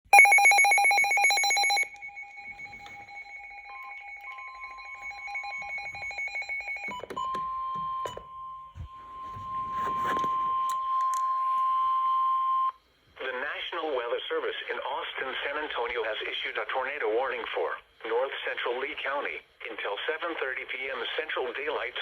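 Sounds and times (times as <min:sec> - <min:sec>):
steady alarm tone: 0:00.1 - 0:12.6.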